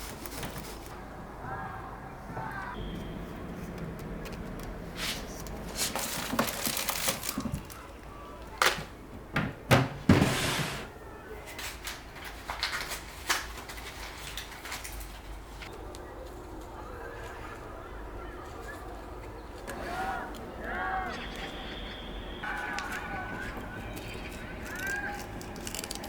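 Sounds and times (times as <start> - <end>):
knocks and clicks of handling: 8.5 - 10.4.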